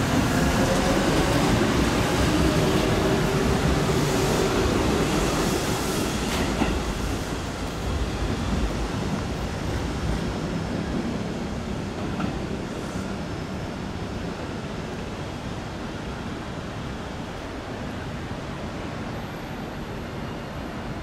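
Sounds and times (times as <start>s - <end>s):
train wheels rumbling on rails: 0.0s - 15.7s.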